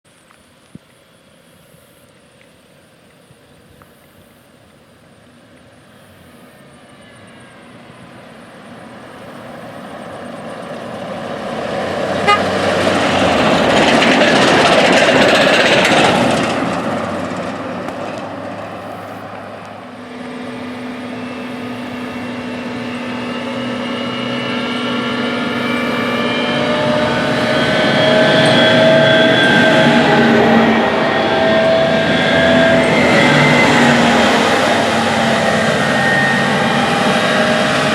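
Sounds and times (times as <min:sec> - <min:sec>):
combine harvester driving past: 0:05.1 - 0:37.9
machine whining tones: 0:19.9 - 0:37.9.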